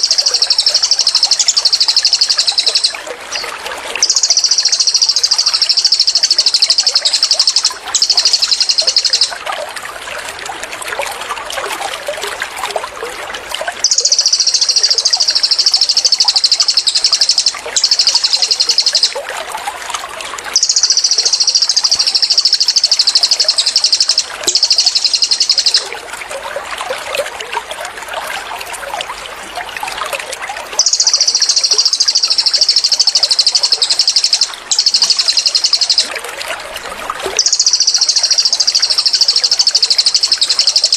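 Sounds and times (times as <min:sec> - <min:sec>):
songbird high-pitched trills: 0:00.0 - 0:09.4, 0:13.8 - 0:19.2, 0:20.5 - 0:26.0, 0:30.8 - 0:36.2, 0:37.4 - 0:40.9
trickling water babbling: 0:00.0 - 0:40.9.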